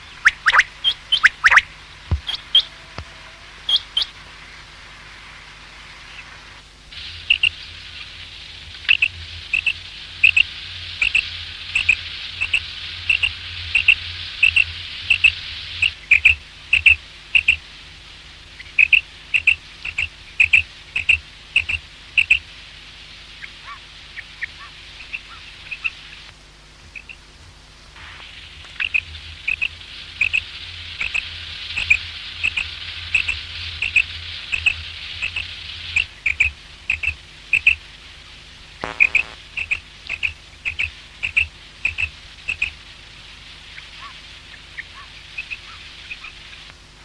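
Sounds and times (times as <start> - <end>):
faint lower chirps: 0.0 - 1.6, 11.8 - 16.0, 28.8 - 31.2, 31.8 - 37.8, 38.8 - 42.7
quail calling: 0.0 - 1.6, 11.0 - 11.2, 11.8 - 17.6, 18.8 - 22.4, 23.4 - 26.0, 28.8 - 31.2, 31.8 - 37.8.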